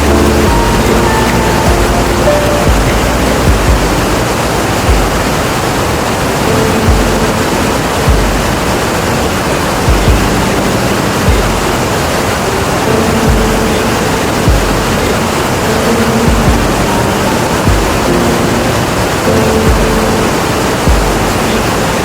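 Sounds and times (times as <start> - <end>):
low thuds: 0.0 - 5.6, 6.7 - 8.9, 9.8 - 12.0, 13.2 - 15.3, 16.2 - 18.6, 19.5 - 21.6
waterfall roaring: 0.0 - 22.0.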